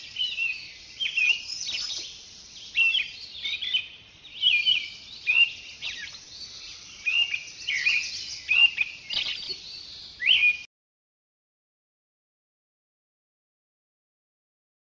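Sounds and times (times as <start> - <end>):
birds chirping and whistling: 0.0 - 10.7.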